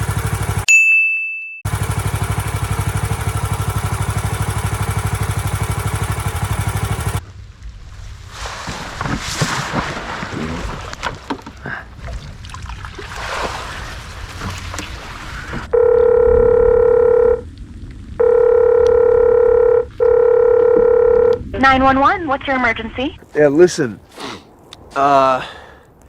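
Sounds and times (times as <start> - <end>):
rustling and splashing: 1.8 - 15.7
telephone ringing tone: 15.7 - 17.4, 18.2 - 21.4.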